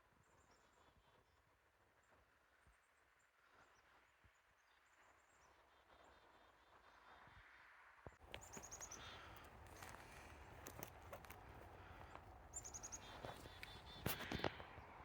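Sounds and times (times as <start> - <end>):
songbirds singing: 8.2 - 15.0.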